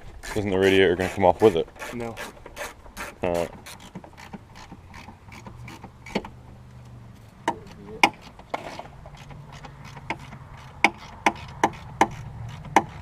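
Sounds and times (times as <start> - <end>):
hand tools clicking and knocking: 0.2 - 6.8, 7.4 - 13.0.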